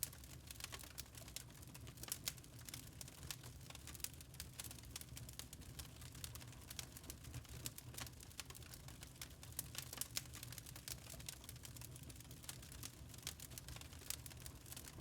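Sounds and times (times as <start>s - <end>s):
log fire crackling: 0.0s - 15.0s
low steady rumble: 14.6s - 15.0s.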